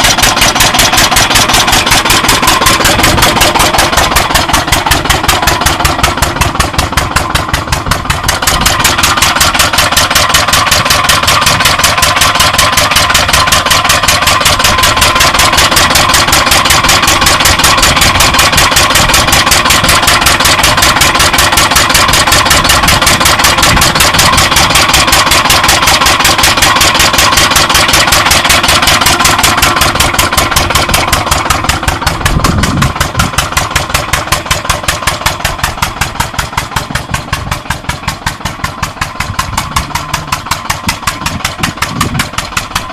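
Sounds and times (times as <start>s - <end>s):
farm engine running: 0.0s - 42.9s.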